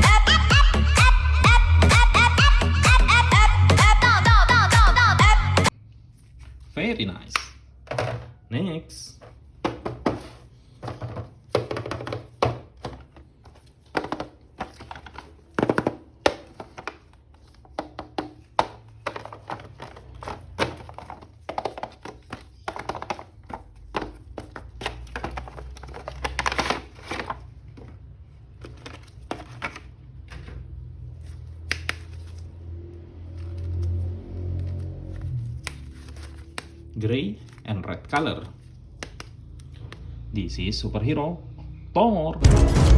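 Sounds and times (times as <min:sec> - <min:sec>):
packaging rustling: 0:09.2 - 0:32.6, 0:33.3 - 0:39.7.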